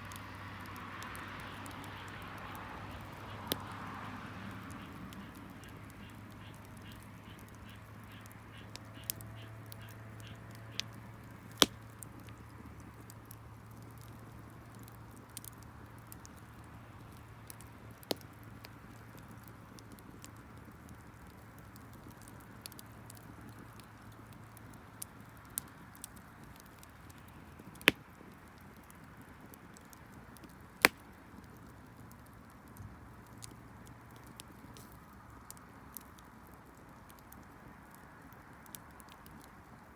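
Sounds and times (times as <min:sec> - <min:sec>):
bonfire crackling and popping: 0:00.0 - 0:39.9
sharp crack: 0:04.6 - 0:12.6, 0:27.7 - 0:28.3.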